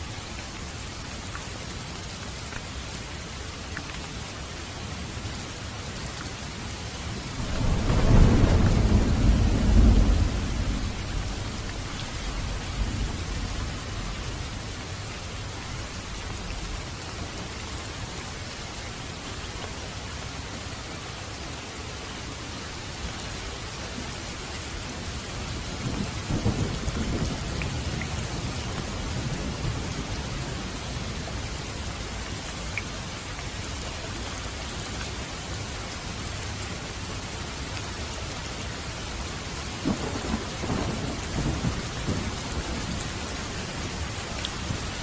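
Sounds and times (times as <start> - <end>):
steady rain falling: 0.0 - 45.0
thunder rumbling: 7.4 - 15.4, 39.8 - 45.0.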